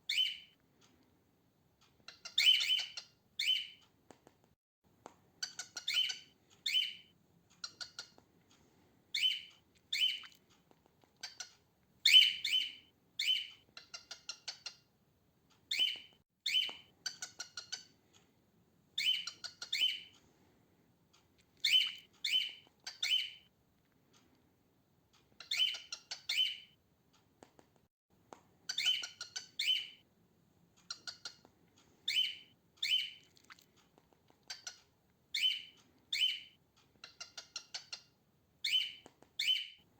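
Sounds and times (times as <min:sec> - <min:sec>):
cockatiel chirping: 0:00.1 - 0:00.6, 0:02.0 - 0:03.8, 0:05.4 - 0:08.2, 0:09.1 - 0:10.4, 0:11.2 - 0:14.9, 0:15.7 - 0:18.0, 0:19.0 - 0:20.1, 0:21.6 - 0:23.5, 0:25.4 - 0:26.8, 0:28.7 - 0:30.0, 0:30.8 - 0:31.5, 0:32.1 - 0:33.2, 0:34.4 - 0:39.8.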